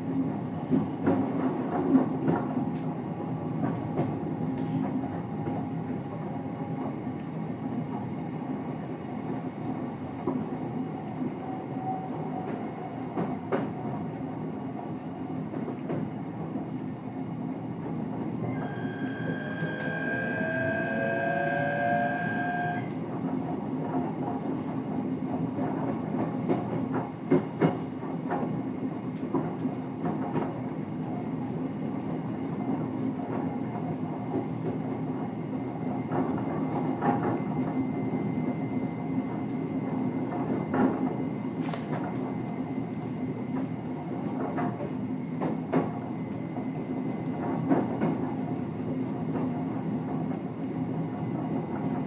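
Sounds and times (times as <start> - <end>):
train running noise: 0.0 - 52.0
rising electric motor whine: 18.5 - 23.0.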